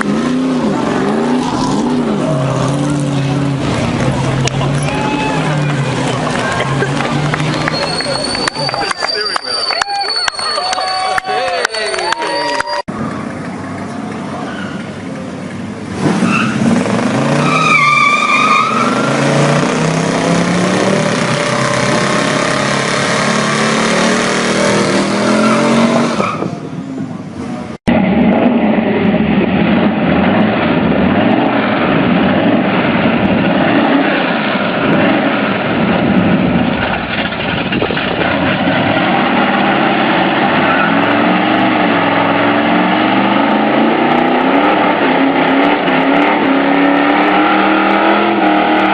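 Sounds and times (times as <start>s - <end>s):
car engine revving: 0.0s - 9.0s, 15.5s - 26.5s, 27.5s - 48.9s
tyres squealing: 4.7s - 12.8s.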